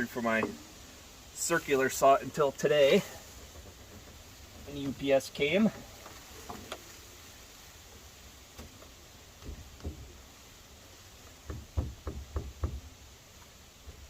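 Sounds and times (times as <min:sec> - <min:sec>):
dull knocks on wooden deck board: 0:09.4 - 0:10.2, 0:11.3 - 0:12.9.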